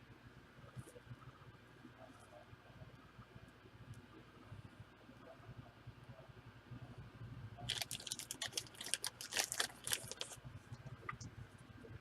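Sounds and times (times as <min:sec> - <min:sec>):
card packaging crackling: 0:07.7 - 0:10.4.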